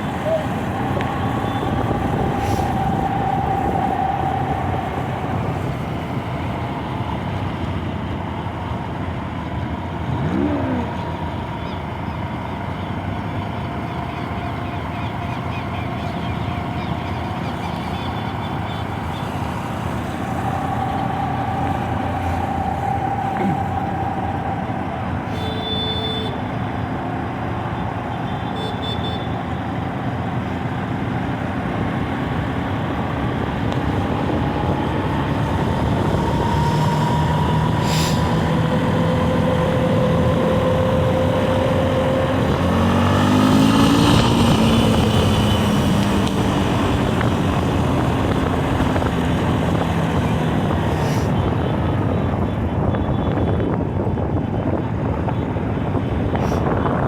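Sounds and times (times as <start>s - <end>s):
racing truck diesel engines: 0.0s - 57.0s.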